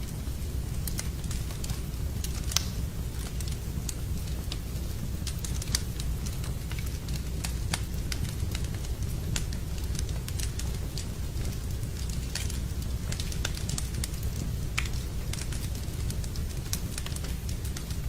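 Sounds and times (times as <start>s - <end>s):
fire crackling and popping: 0.0s - 18.0s
low rumble of flames: 0.0s - 18.0s.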